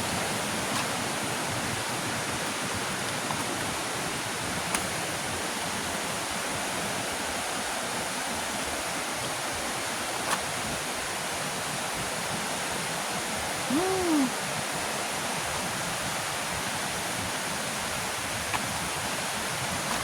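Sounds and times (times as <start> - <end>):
waterfall rushing: 0.0 - 15.8
short rising and falling call: 13.7 - 14.3.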